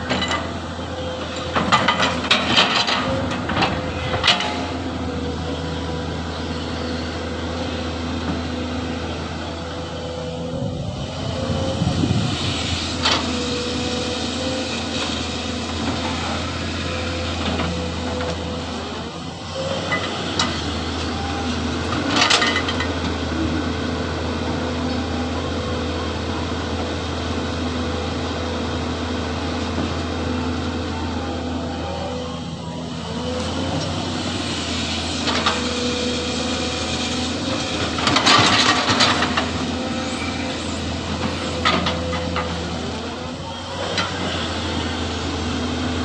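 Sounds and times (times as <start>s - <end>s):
excavator diesel engine running: 0.0s - 46.0s.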